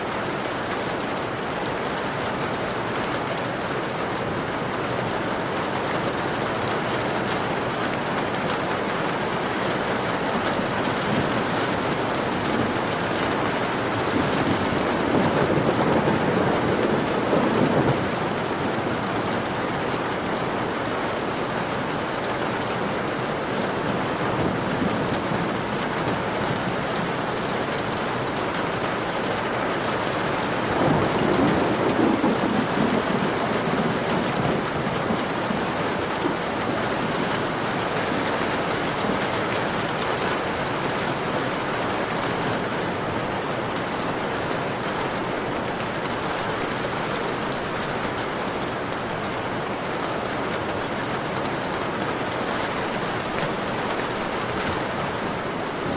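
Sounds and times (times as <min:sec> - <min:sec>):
rain on a window: 0:00.0 - 0:55.9
thunder rolling: 0:10.6 - 0:19.1, 0:30.7 - 0:37.6.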